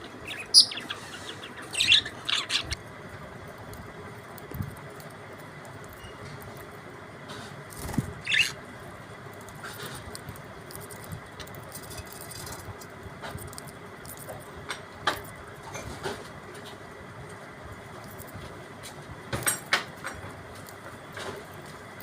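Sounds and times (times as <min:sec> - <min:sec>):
budgerigars chirping: 0:00.0 - 0:02.8, 0:08.2 - 0:08.6.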